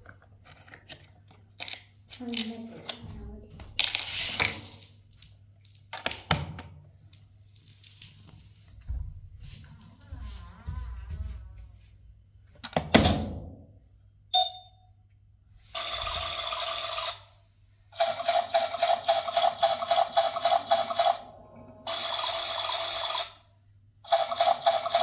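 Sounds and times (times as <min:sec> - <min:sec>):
short electronic beep: 0:14.3 - 0:14.9.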